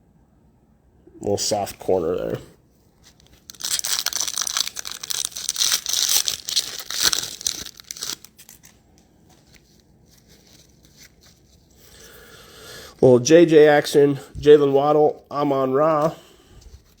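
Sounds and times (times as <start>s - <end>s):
foil wrapper tearing and crinkling: 3.1s - 8.8s.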